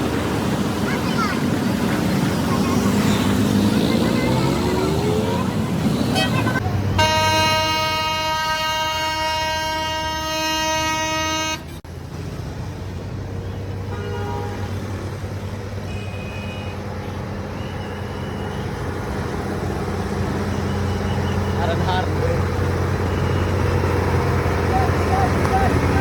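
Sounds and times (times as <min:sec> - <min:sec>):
diesel engine running: 0:00.0 - 0:11.2, 0:14.4 - 0:26.0
truck horn: 0:06.8 - 0:11.8, 0:13.8 - 0:14.9, 0:15.8 - 0:18.7.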